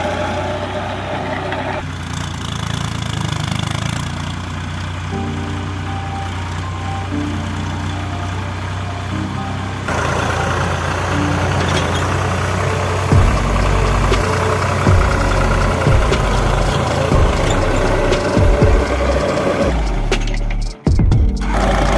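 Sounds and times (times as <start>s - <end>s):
tractor engine running: 0.0s - 21.9s
low thumps: 13.1s - 21.5s.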